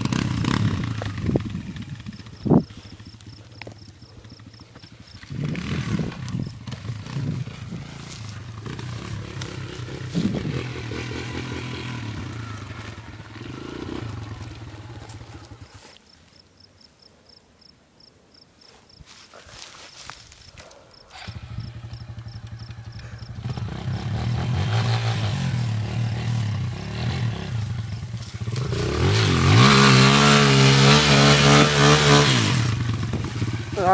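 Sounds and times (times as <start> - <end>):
dirt bike engine running: 0.0 - 15.9, 21.1 - 33.9.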